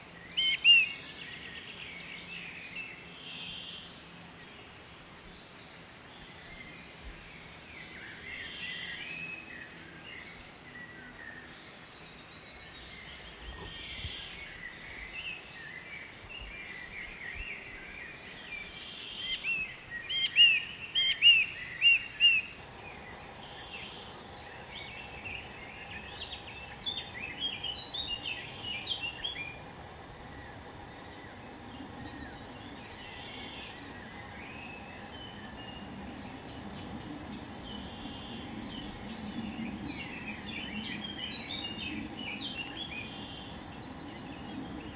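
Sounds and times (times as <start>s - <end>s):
songbirds chirping and singing: 18.0s - 44.9s.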